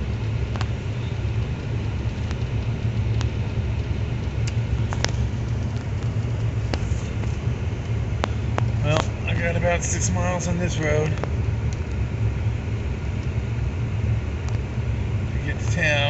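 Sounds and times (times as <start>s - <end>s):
truck engine and tyres rumbling: 0.0s - 16.0s.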